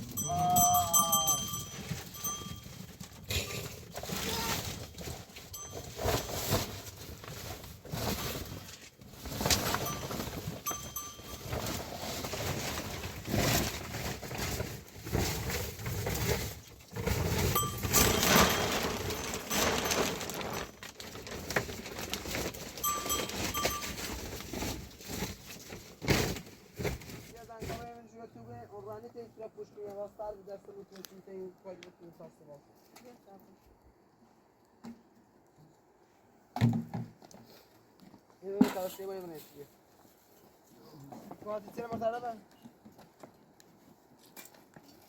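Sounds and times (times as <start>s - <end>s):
animal bells ringing: 0.0s - 4.8s, 5.4s - 6.7s, 9.5s - 12.1s, 17.3s - 20.8s, 22.6s - 24.4s
livestock moving about: 0.0s - 28.0s.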